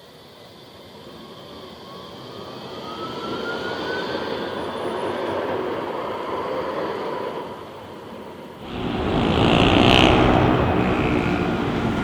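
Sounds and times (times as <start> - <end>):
tram approaching: 4.0 - 12.0
thin whine rising in pitch: 8.6 - 12.0.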